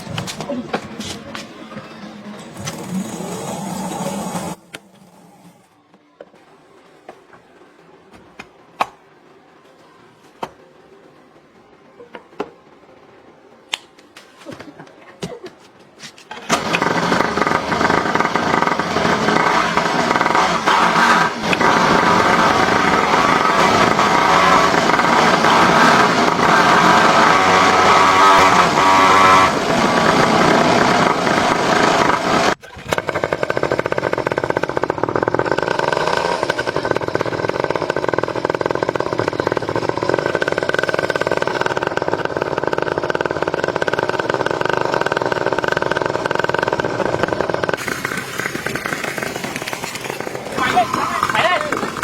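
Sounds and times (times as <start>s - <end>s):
motorcycle engine running: 16.5s - 52.0s.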